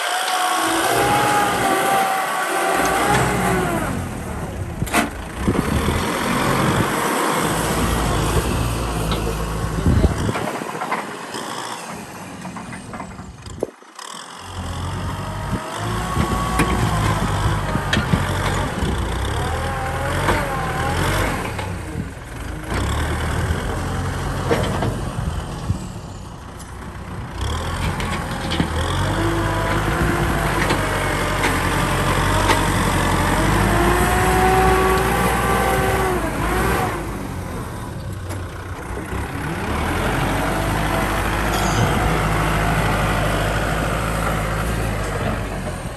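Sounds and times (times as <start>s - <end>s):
tractor diesel engine under load: 0.0s - 45.9s.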